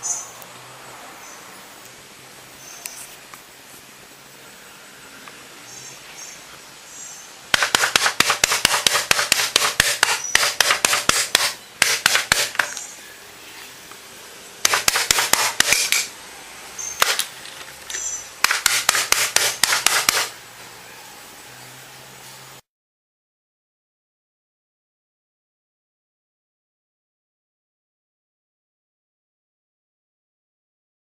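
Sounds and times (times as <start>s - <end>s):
rapid tapping on hard surface: 7.5s - 12.7s, 14.6s - 16.1s, 18.4s - 20.3s.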